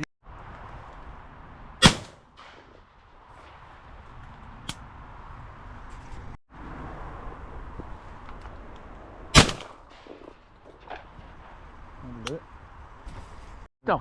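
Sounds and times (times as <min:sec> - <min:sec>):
shotgun shot with echo: 0:01.8 - 0:02.8, 0:09.4 - 0:10.3.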